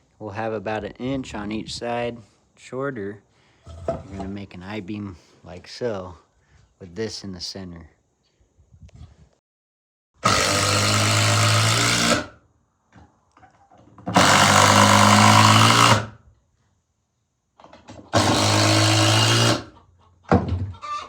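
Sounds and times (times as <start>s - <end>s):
power drill driving screws into wood: 10.2s - 12.4s, 14.1s - 16.1s, 18.1s - 19.7s.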